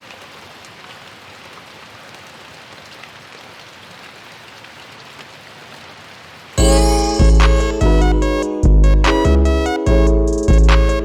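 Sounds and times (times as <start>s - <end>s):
steady rain: 0.0s - 8.4s.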